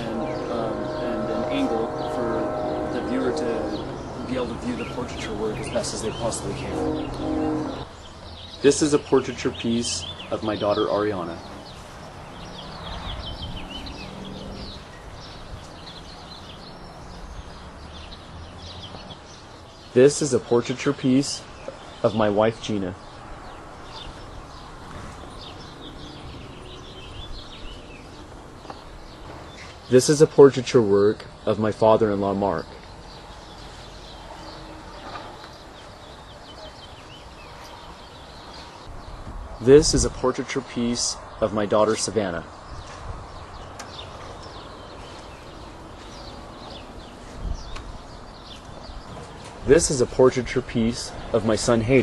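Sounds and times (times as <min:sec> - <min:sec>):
steady low hum: 0:00.0 - 0:08.1
outdoor background noise: 0:00.0 - 0:52.0
small birds chirping: 0:00.0 - 0:52.0.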